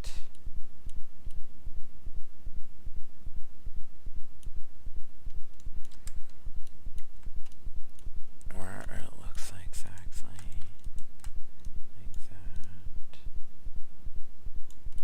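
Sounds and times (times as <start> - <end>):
computer mouse clicks: 5.3 - 8.1, 9.8 - 12.8, 14.7 - 15.0.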